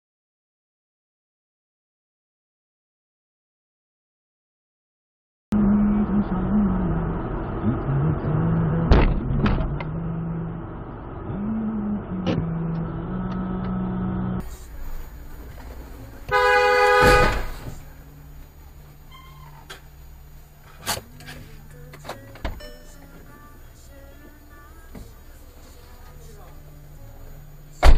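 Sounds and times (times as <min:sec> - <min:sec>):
vehicle engine and road hum: 0:05.5 - 0:27.9
car horn blast: 0:16.2 - 0:17.9.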